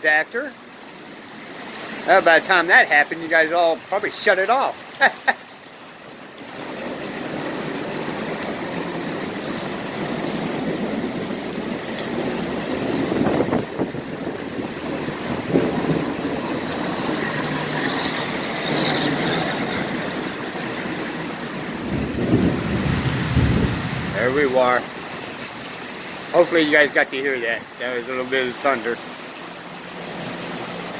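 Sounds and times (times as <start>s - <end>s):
rain falling: 0.0s - 30.9s
thunder rumbling: 7.2s - 25.2s.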